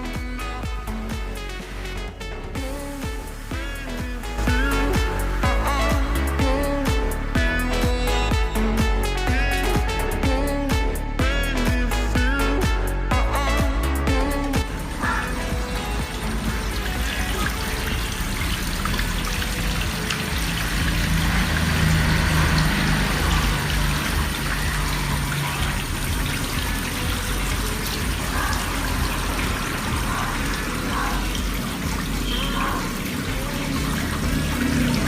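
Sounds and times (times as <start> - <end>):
water trickling into a pond: 14.6 - 35.0.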